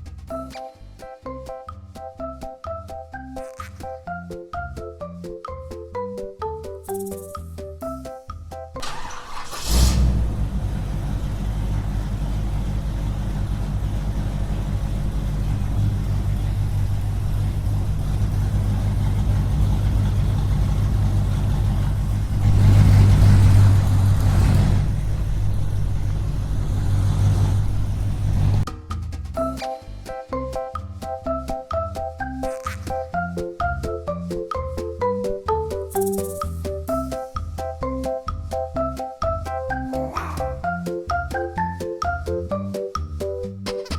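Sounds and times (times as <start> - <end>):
music: 0.0 - 9.7, 28.7 - 43.9.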